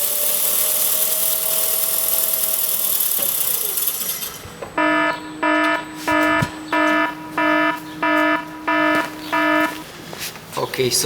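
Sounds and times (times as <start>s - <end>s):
electronic beeps: 4.8s - 9.9s.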